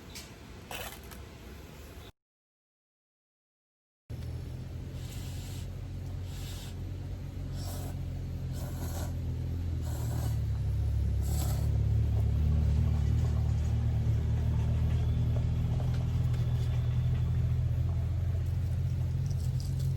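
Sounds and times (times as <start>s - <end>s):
vehicle engine rumble: 4.1s - 19.9s
faint hiss: 4.7s - 11.8s.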